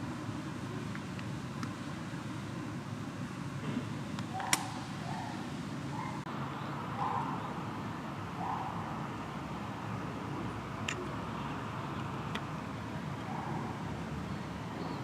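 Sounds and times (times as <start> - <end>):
steady background noise: 0.0 - 15.0
sharp click: 4.2 - 4.8.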